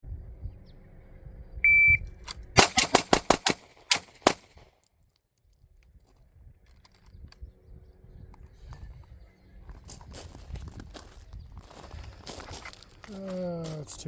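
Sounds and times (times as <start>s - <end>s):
shot timer beep: 1.6s - 2.0s
pistol shots: 2.6s - 4.6s.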